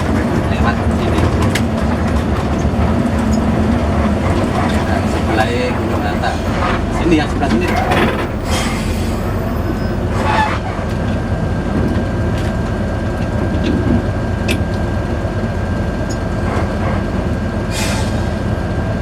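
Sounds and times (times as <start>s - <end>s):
bus engine rumble: 0.0s - 19.0s
road noise: 0.0s - 19.0s
short hisses: 17.7s - 18.4s.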